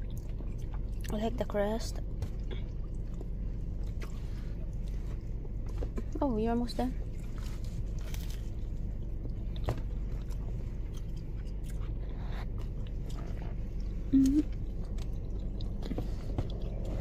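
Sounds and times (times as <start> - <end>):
close-up chewing: 0.0 - 1.2, 7.0 - 17.0
low hum: 0.0 - 17.0
person humming mm: 14.1 - 14.5.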